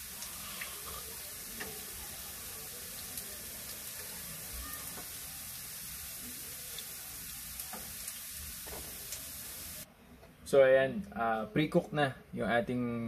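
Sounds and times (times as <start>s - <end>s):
potatoes sizzling in oil: 0.0s - 9.9s.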